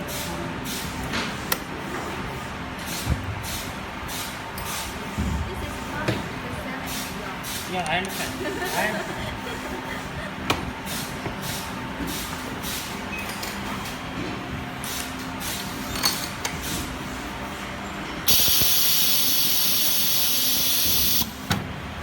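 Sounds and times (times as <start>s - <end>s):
air hissing: 18.3s - 21.4s.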